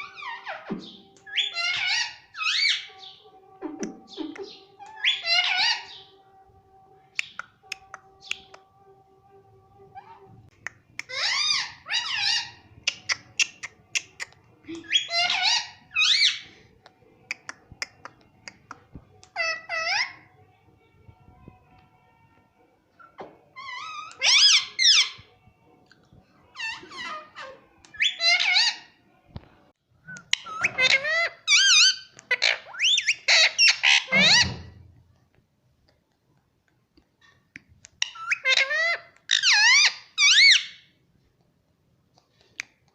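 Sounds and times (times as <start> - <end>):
parrot squawking and chirping: 0.0 - 6.2, 11.0 - 16.6, 17.2 - 20.3, 23.0 - 25.3, 26.4 - 29.0, 30.1 - 34.8, 37.9 - 41.0.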